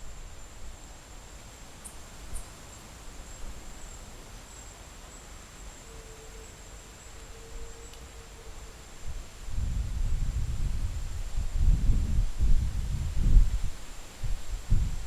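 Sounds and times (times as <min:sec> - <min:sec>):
steady hiss and low rumble: 0:00.0 - 0:15.0.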